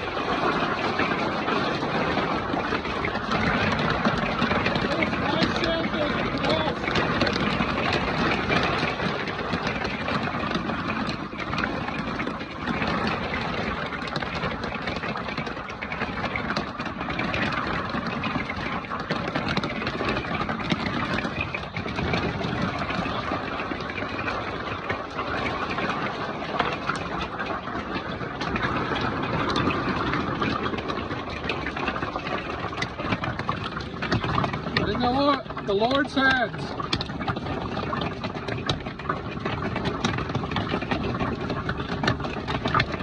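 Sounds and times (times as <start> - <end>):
hailstones clattering: 0.0 - 43.0.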